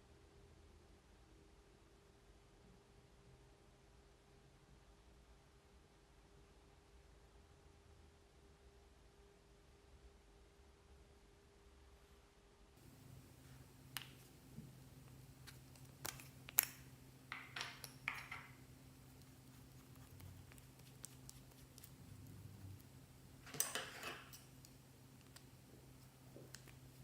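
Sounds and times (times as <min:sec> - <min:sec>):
low hum: 0:12.8 - 0:23.6
slime squishing and clicking: 0:15.0 - 0:17.0, 0:17.7 - 0:22.9.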